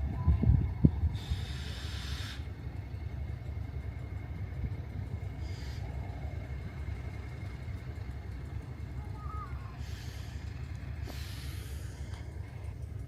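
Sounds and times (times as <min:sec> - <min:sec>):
vehicle rumble in motion: 0:00.0 - 0:13.0
short hissing bursts: 0:01.2 - 0:02.5, 0:09.8 - 0:12.1.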